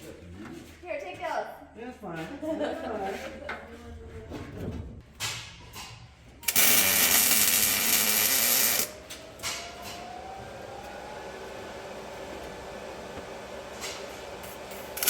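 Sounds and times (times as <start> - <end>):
power tool whirring: 6.4 - 9.0, 14.6 - 15.0.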